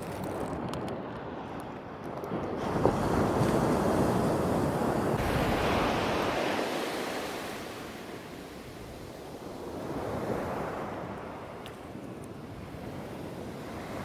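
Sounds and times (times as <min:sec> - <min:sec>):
ocean surf breaking: 0:02.6 - 0:11.6.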